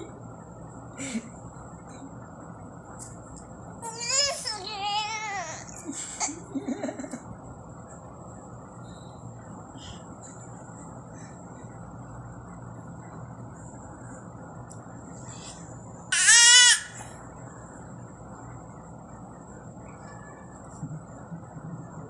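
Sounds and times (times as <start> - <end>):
low background hum: 0.0 - 22.0
high wavering cry: 16.1 - 17.1.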